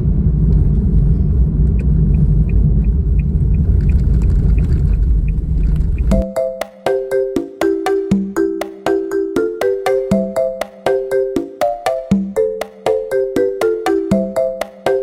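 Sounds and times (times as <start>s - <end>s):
loud low rumble: 0.0s - 6.2s
chiming music: 6.2s - 15.0s.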